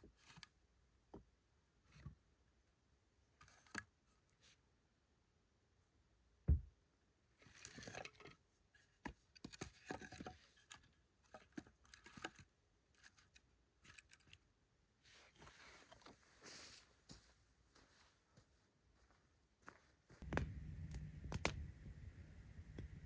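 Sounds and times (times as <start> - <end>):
handling clicks and scrapes: 7.4 - 14.4, 15.2 - 16.5
low thump: 20.2 - 23.0.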